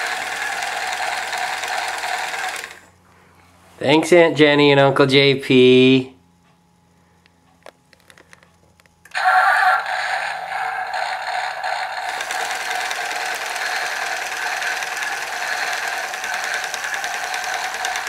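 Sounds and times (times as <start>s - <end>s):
toy tractor engine sound effect: 0.0s - 2.9s, 9.1s - 18.0s.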